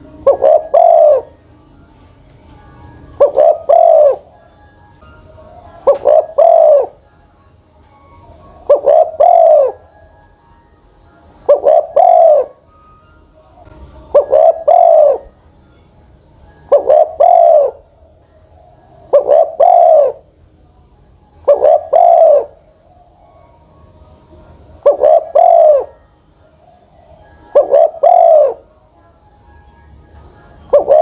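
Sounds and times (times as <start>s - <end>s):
dove cooing: 0.0s - 1.4s, 3.1s - 4.6s, 5.5s - 7.0s, 8.5s - 10.4s, 11.4s - 12.7s, 13.5s - 15.4s, 16.6s - 20.4s, 21.4s - 23.6s, 24.8s - 28.7s, 30.6s - 31.0s.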